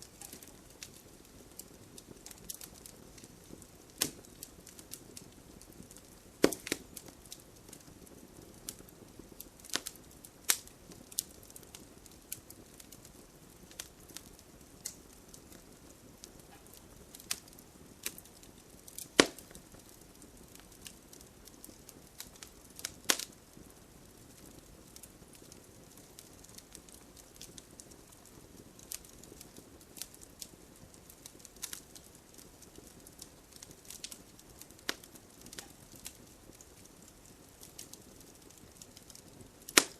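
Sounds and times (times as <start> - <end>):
burning wood popping and snapping: 0.0 - 39.9
low hiss of flame: 0.0 - 39.9.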